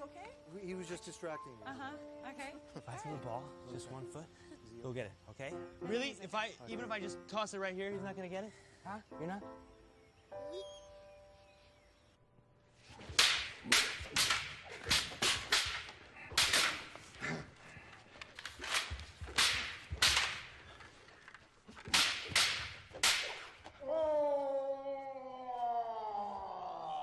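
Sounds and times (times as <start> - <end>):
short sharp swishes: 12.8 - 17.0, 21.9 - 23.7.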